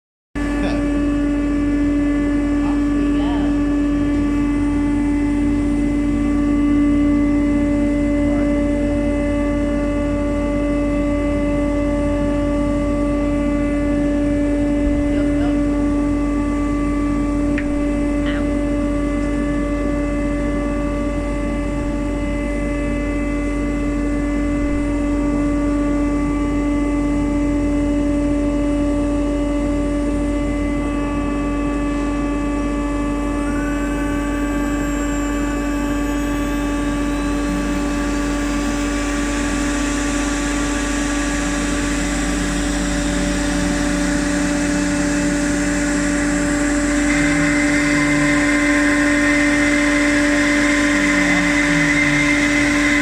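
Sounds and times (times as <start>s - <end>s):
cnc router spindle whine: 0.4s - 53.0s
mechanical hum: 0.4s - 53.0s
hissy cutting noise: 33.5s - 53.0s.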